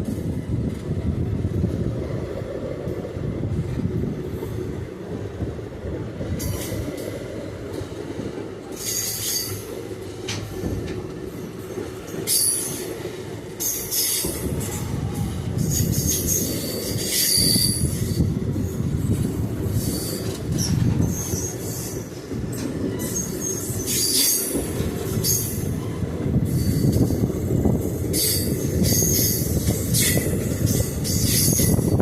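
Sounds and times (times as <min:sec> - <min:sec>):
train wheels rumbling on rails: 0:00.0 - 0:32.0
high-pitched wheel squeals: 0:15.6 - 0:18.2.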